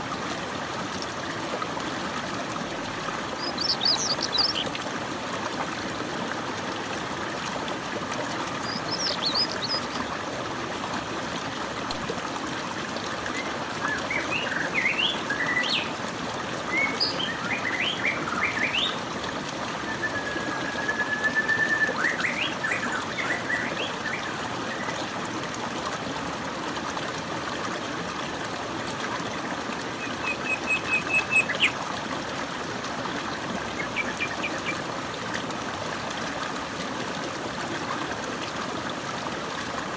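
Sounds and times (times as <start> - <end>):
flowing water: 0.0 - 39.9
birds chirping: 3.4 - 4.7.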